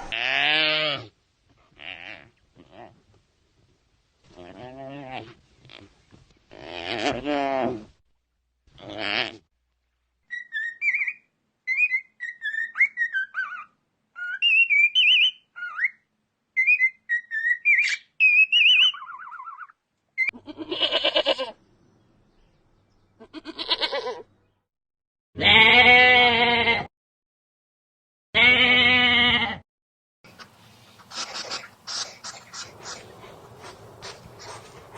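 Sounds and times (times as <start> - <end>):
quavering animal bleats: 0.0 - 1.1, 1.7 - 3.0, 4.3 - 5.9, 8.8 - 9.4, 20.3 - 21.6, 23.2 - 24.3, 25.4 - 26.9, 28.4 - 29.6, 31.0 - 34.9
bird chirping: 10.3 - 19.7, 30.3 - 34.9.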